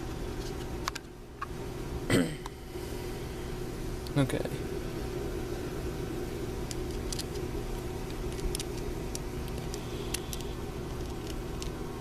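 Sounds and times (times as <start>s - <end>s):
low background hum: 0.0s - 12.0s
small metal parts clicking: 6.7s - 7.4s, 8.1s - 11.8s.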